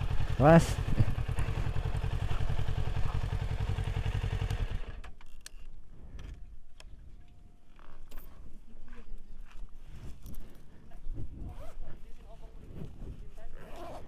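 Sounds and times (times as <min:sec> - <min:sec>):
motorcycle engine idling: 0:00.0 - 0:05.2.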